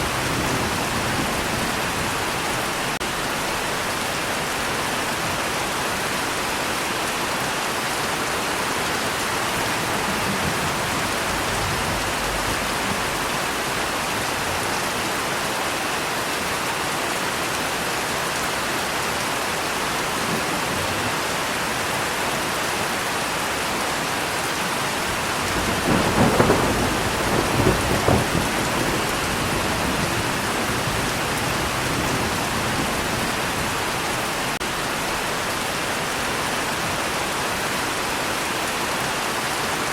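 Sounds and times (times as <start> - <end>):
thunder rumbling: 0.0 - 3.8, 9.1 - 14.8, 25.1 - 35.3
steady rain: 0.0 - 39.9.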